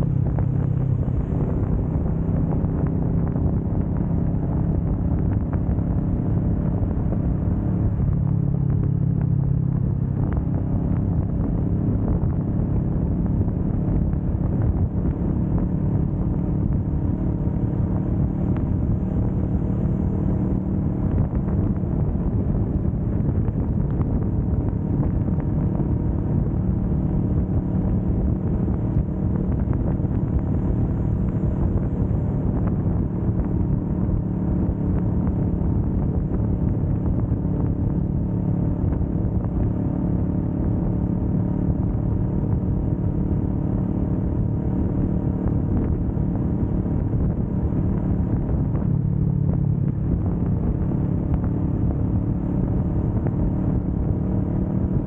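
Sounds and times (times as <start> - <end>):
motorcycle engine droning: 0.0 - 55.0.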